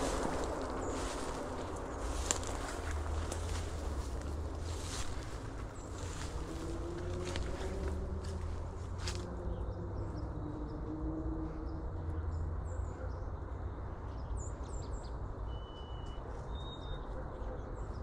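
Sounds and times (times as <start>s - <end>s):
small birds chirping: 0.0s - 10.9s
wind rumble on microphone: 0.0s - 15.4s.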